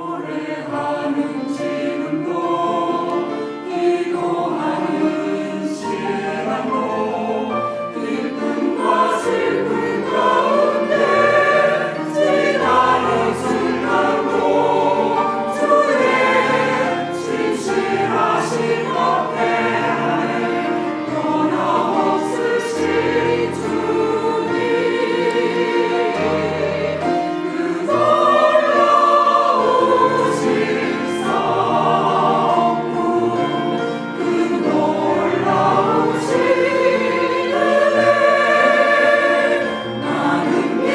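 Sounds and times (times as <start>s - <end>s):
church choir singing: 0.0s - 40.9s.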